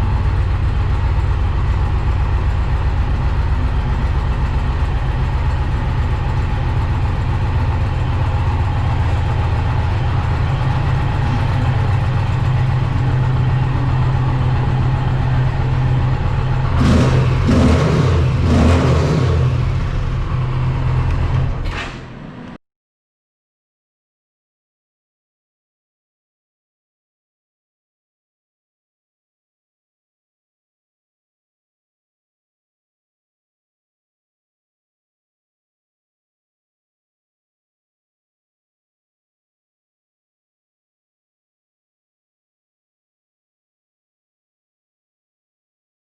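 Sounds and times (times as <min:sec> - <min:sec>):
motorcycle engine idling: 0:00.0 - 0:21.6.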